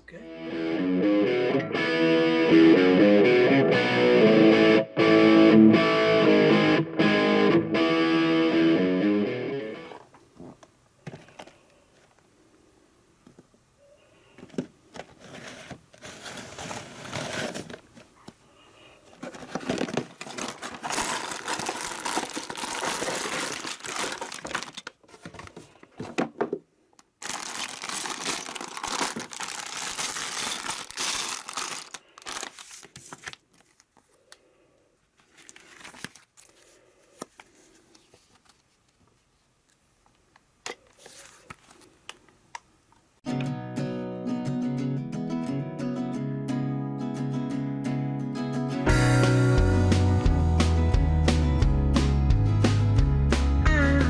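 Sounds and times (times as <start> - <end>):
plastic bags crinkling and tearing: 19.2 - 25.1, 27.2 - 34.0.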